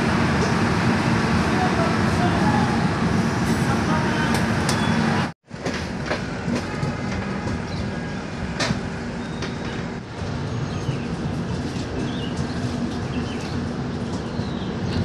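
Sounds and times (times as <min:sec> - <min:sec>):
passenger train rumble: 0:00.0 - 0:15.0
wheels clacking over rail joints: 0:05.5 - 0:15.0.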